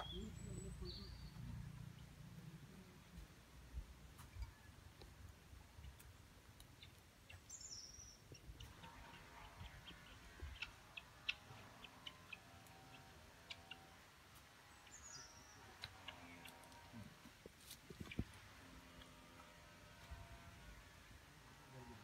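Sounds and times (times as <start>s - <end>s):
small bird chirping: 0.0s - 2.2s, 5.6s - 16.8s
faint steady hum: 0.0s - 22.0s.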